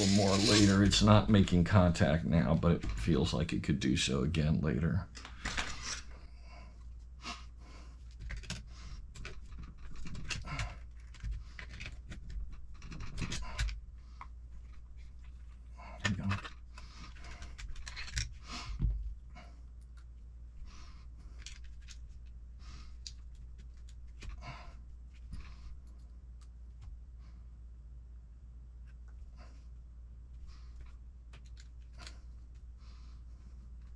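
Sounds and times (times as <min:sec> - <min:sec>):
steady low hum: 0:00.0 - 0:33.9
small parts clicking and tapping: 0:16.0 - 0:18.4, 0:30.8 - 0:32.7.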